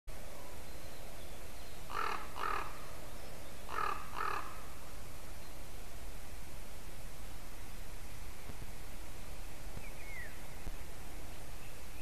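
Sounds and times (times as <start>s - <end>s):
bird harsh calls: 1.9s - 2.8s, 3.7s - 4.6s.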